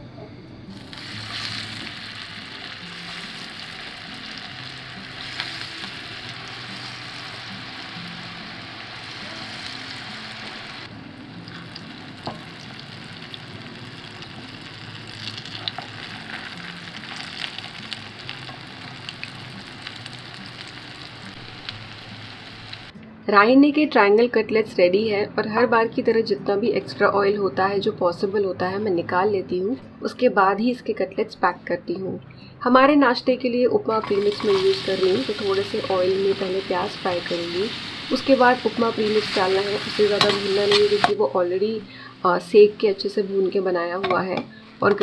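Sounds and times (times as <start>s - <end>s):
cutlets sizzling in hot oil: 0.8s - 10.9s, 11.5s - 22.9s, 34.0s - 41.2s.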